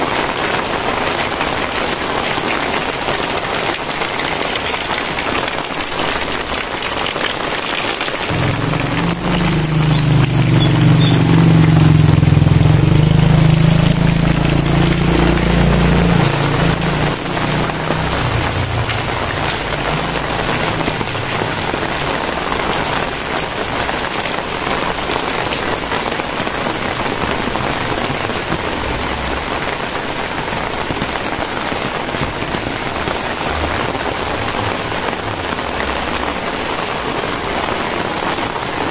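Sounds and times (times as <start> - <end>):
heavy rain falling: 0.0 - 38.9
low rumble: 8.3 - 21.9.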